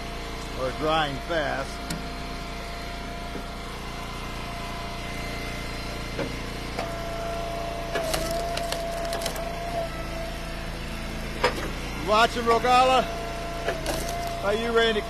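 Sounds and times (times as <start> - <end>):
wood splitter running: 0.0 - 15.0
firewood cracking as it splits: 7.9 - 9.7, 13.6 - 14.5.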